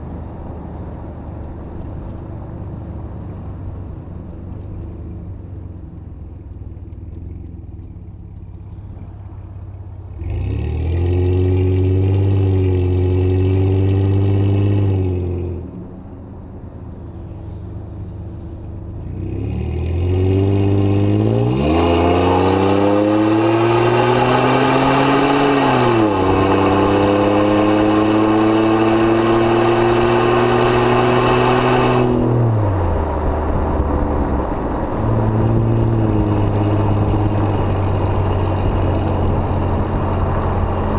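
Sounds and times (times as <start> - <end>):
car engine revving and shifting: 8.6 - 15.8, 18.4 - 40.9.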